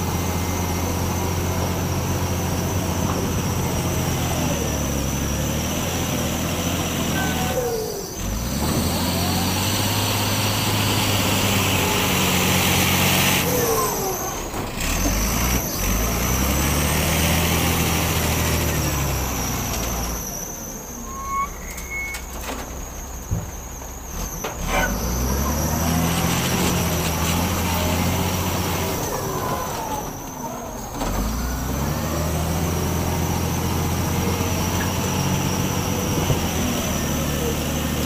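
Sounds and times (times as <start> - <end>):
heavy diesel engine under load: 0.0 - 38.0
brief squeals: 7.0 - 9.7, 18.5 - 28.0.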